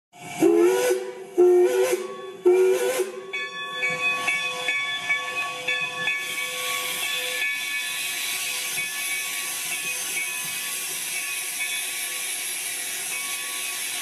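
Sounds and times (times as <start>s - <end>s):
steam locomotive whistle: 0.2s - 3.3s
steam hissing: 0.2s - 14.0s.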